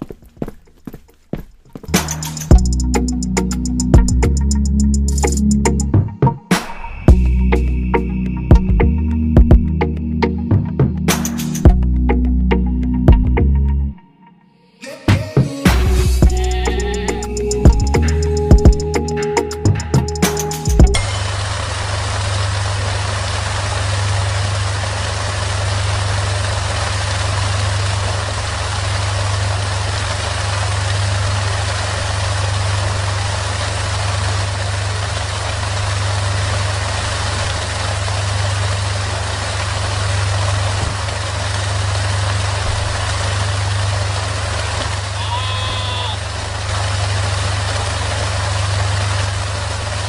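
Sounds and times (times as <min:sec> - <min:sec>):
small water pump motor humming: 0:21.0 - 0:50.0.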